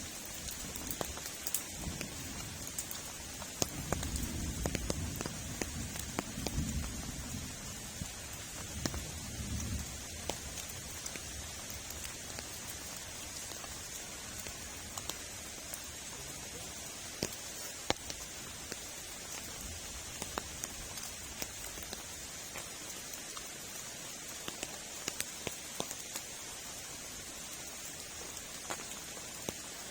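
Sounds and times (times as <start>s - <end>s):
heavy rain: 0.0s - 29.9s
raindrops ticking: 0.0s - 29.9s.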